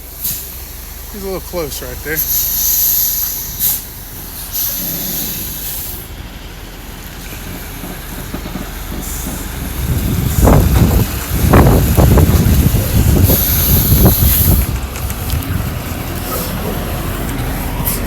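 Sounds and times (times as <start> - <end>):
air brakes hissing: 0.0 - 6.2, 7.4 - 11.1, 12.8 - 14.7, 16.2 - 18.0
diesel truck engine rumbling: 0.0 - 18.0.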